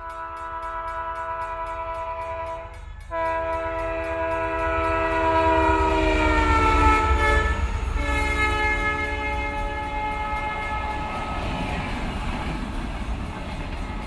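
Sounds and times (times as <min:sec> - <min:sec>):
train horn blowing: 0:00.0 - 0:11.9
train rumbling: 0:00.0 - 0:14.0.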